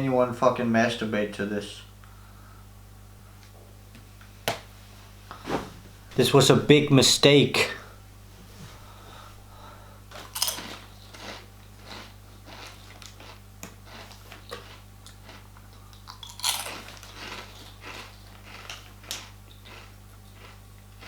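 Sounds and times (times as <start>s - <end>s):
steady low hum: 0.0s - 19.0s
crunching and crackling: 10.1s - 21.0s.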